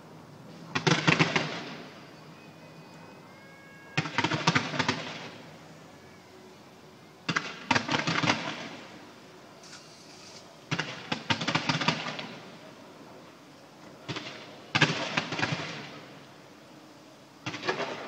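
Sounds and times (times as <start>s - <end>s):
fireworks bangs and cracks: 0.7s - 2.1s, 3.9s - 5.6s, 7.3s - 9.0s, 10.2s - 12.6s, 14.0s - 16.2s, 17.4s - 18.0s.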